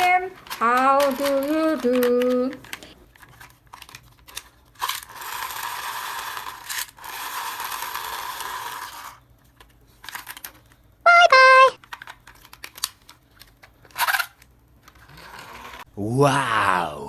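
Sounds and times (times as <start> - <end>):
toys clicking and knocking: 0.0 - 5.8.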